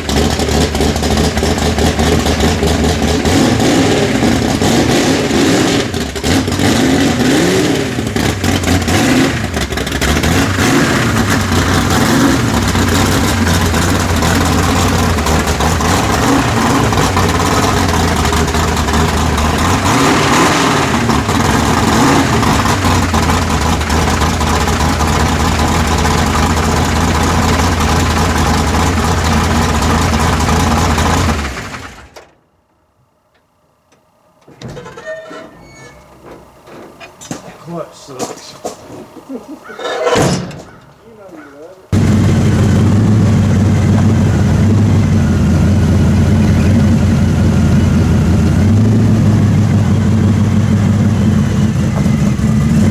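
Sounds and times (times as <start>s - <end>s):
truck engine revving: 0.0s - 32.2s, 34.8s - 52.9s.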